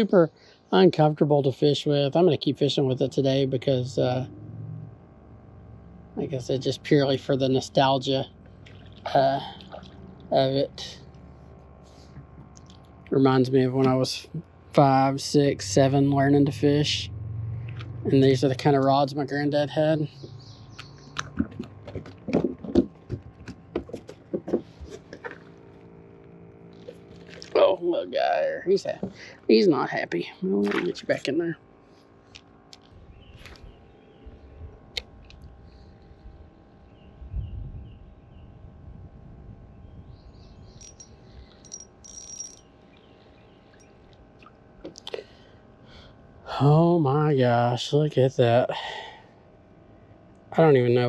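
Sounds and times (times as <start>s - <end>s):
steady low hum: 0.0s - 51.0s
high-pitched chirps: 40.8s - 42.6s.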